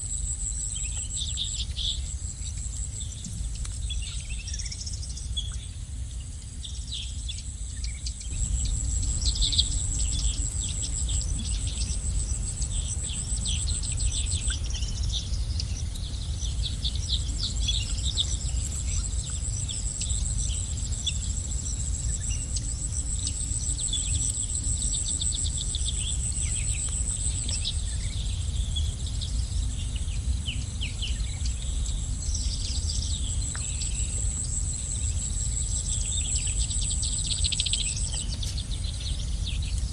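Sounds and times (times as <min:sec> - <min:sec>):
high-pitched insect trill: 0:00.0 - 0:39.9
low background rumble: 0:00.0 - 0:39.9
songbirds chirping and twittering: 0:00.0 - 0:39.9.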